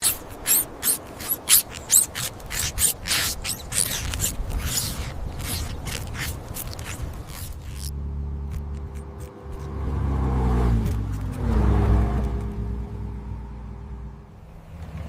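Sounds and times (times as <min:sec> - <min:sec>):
rapid rasping rubbing strokes: 0:00.0 - 0:09.8.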